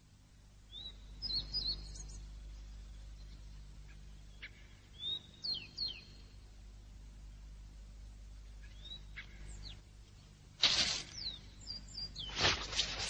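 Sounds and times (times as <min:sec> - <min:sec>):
birds chirping: 0:00.7 - 0:06.5, 0:08.4 - 0:13.0.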